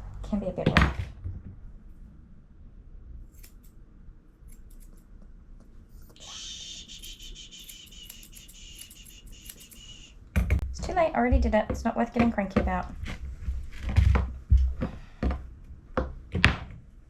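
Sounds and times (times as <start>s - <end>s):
scissors snipping fur: 3.3s - 3.8s, 4.4s - 5.1s, 7.0s - 10.0s.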